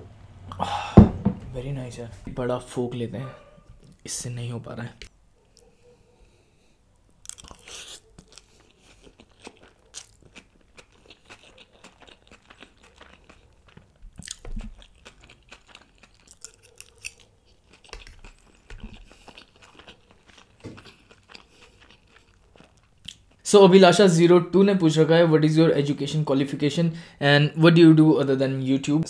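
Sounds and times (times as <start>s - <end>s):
chewing noodles: 7.2s - 23.4s.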